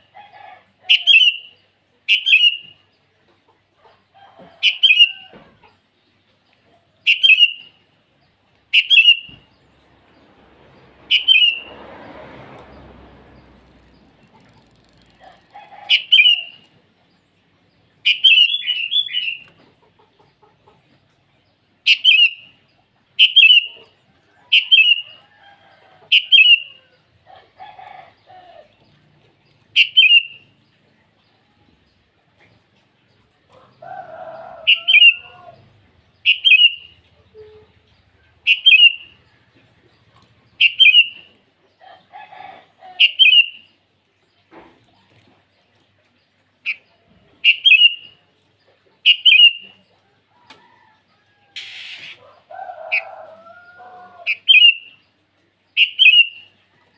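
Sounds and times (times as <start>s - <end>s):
bird giving short sharp calls: 51.6s - 52.2s.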